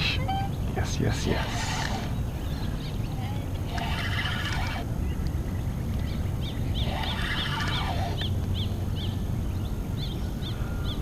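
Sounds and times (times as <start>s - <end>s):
rough bird call: 0.0s - 3.0s, 3.6s - 4.9s, 6.4s - 8.4s
bird chirping: 0.0s - 11.0s
steady low rumble: 0.0s - 11.0s.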